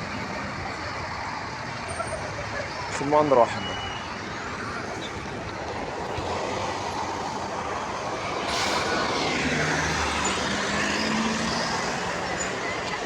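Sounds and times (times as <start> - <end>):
road traffic noise: 0.0 - 13.0
vehicle engine rising in pitch: 8.1 - 12.2.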